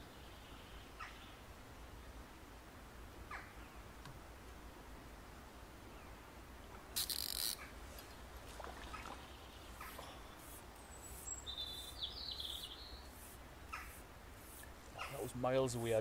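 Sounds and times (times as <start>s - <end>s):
songbirds chirping: 0.0s - 16.0s
short brushing sounds: 7.0s - 8.1s, 9.8s - 16.0s.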